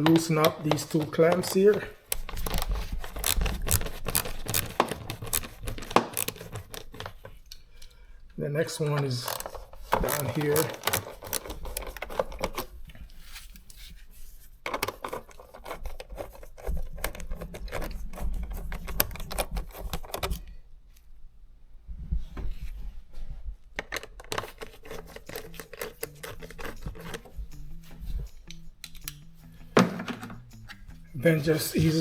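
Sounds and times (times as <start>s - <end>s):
socket ratchet clicking: 0.0s - 7.2s, 9.0s - 12.7s, 24.3s - 31.0s.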